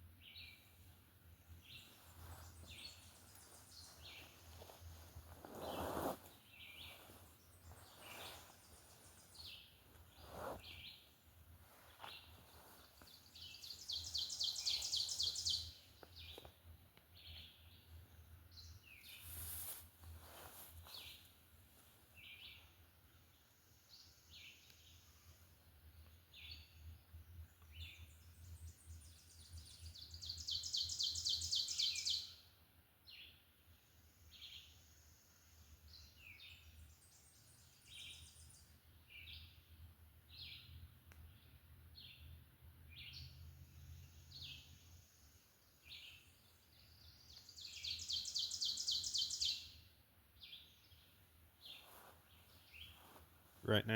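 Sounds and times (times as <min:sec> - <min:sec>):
short bird chirps: 0:13.4 - 0:15.7.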